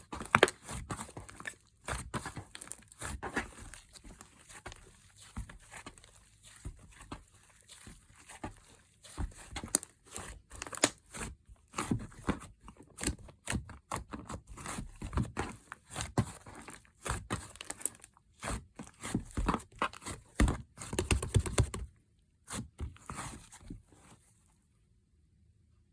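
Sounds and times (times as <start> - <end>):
soft slime squishes: 0.0 - 24.7.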